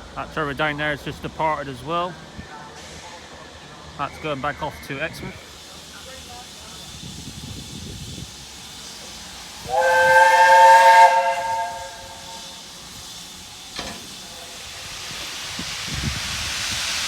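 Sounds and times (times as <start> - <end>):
steam hissing: 1.9 - 17.0
steam locomotive whistle: 9.6 - 12.7.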